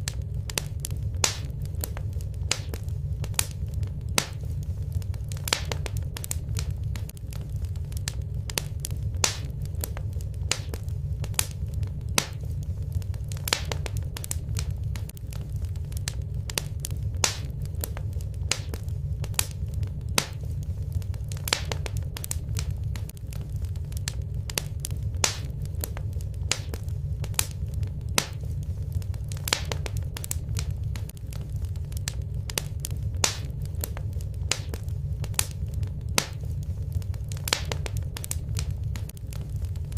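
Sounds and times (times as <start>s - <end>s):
fire crackling and popping: 0.0s - 39.9s
wood fire burning: 0.0s - 39.9s.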